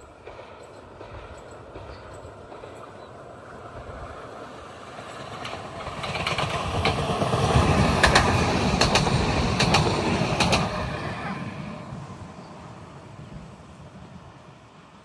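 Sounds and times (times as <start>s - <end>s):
train rumbling past: 0.0s - 15.0s
wheels clicking over rail joints: 0.1s - 11.2s.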